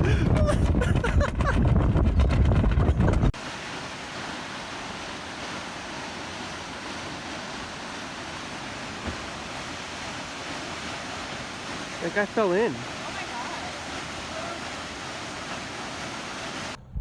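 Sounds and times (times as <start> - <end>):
water rushing: 3.3 - 16.8.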